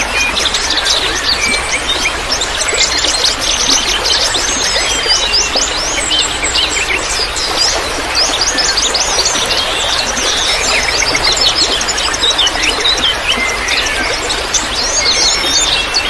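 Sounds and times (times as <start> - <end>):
songbirds chirping and trilling: 0.0 - 16.0
trickling water hiss: 0.0 - 16.0.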